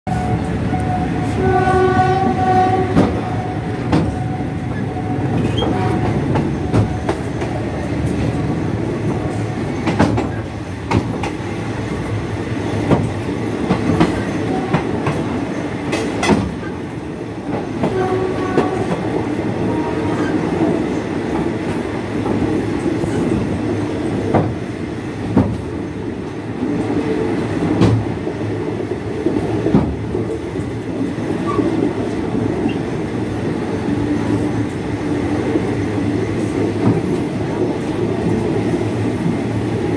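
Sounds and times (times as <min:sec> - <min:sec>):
train horn: 0:00.1 - 0:07.2, 0:14.4 - 0:15.1, 0:17.8 - 0:20.3
train wheels rumbling: 0:00.1 - 0:39.9
clacks over rail joints: 0:02.8 - 0:04.8, 0:05.4 - 0:08.5, 0:09.4 - 0:11.5, 0:12.8 - 0:16.8, 0:25.3 - 0:25.7, 0:27.7 - 0:28.1, 0:29.2 - 0:30.7.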